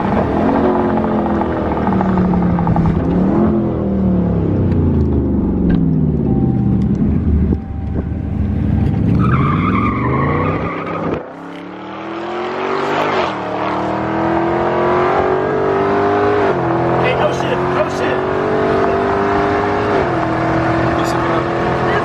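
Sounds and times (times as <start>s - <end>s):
car engine revving: 0.0s - 22.0s
tires squealing: 8.9s - 11.4s.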